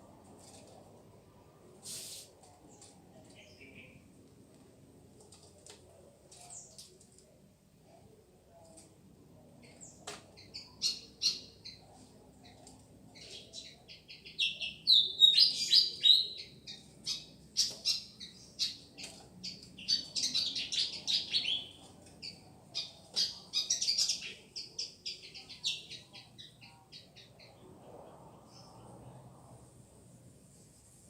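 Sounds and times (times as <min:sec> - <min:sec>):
bird chirping: 0:09.6 - 0:27.6.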